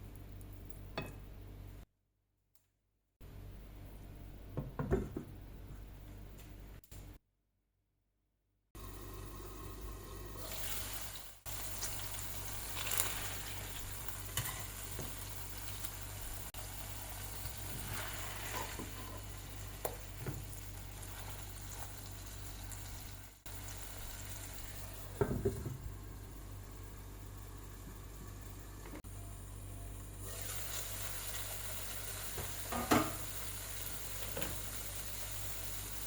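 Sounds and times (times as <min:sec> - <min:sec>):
meat sizzling in a frying pan: 0:10.4 - 0:25.2, 0:30.2 - 0:36.0.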